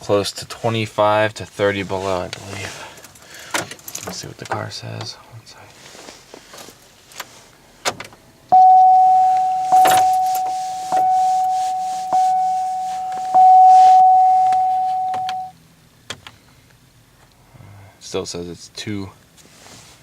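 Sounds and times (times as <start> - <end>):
car warning chime: 8.5 - 15.5
keys jingling: 9.0 - 15.5.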